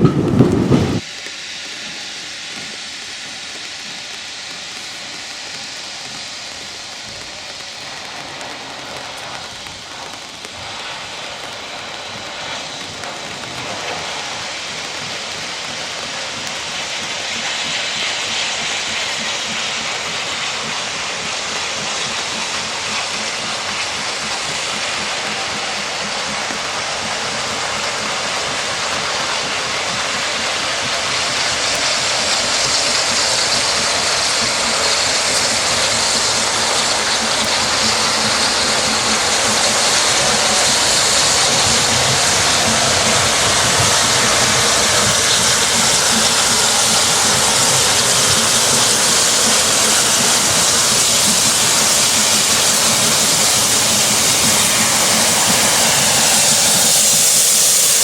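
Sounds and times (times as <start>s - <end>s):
steam train rushing: 0.0s - 58.0s.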